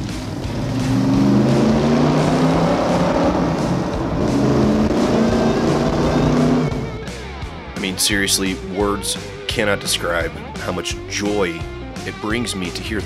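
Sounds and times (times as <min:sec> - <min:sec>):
car engine and exhaust at speed: 0:00.0 - 0:07.8.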